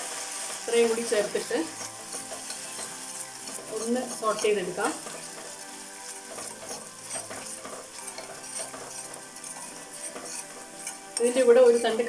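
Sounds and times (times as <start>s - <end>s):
sauce sizzling in hot oil: 0.0s - 12.0s
spoon stirring and scraping pan: 0.0s - 12.0s.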